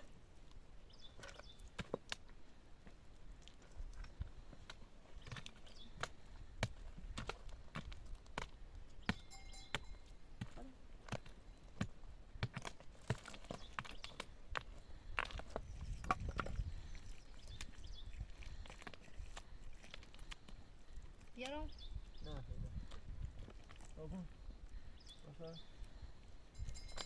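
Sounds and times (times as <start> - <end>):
sharp knocks of stones and tools: 5.2 - 14.3.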